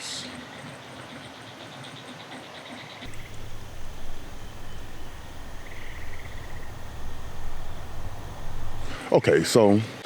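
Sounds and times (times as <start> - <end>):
faint pulsing insect trill: 3.1 - 9.0
wind buffeting microphone: 3.1 - 9.0.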